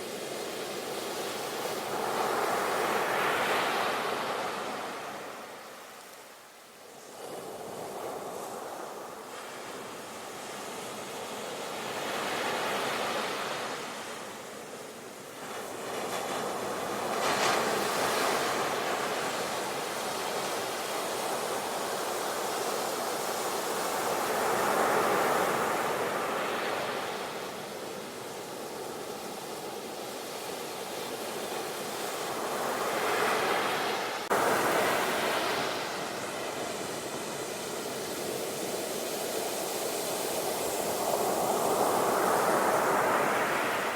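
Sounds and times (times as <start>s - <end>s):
sea waves breaking on shore: 15.3s - 43.9s.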